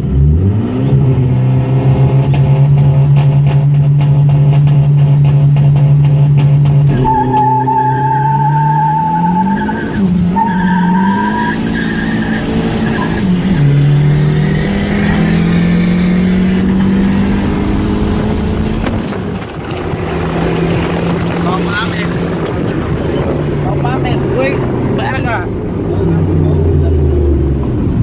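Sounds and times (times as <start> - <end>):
car engine accelerating hard: 0.0 - 28.0.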